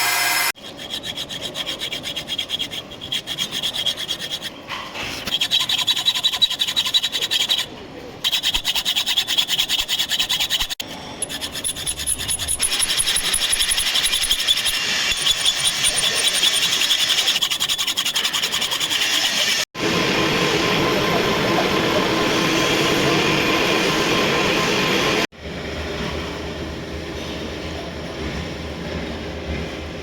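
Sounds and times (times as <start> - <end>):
metal grinding rasp: 0.0 - 19.7.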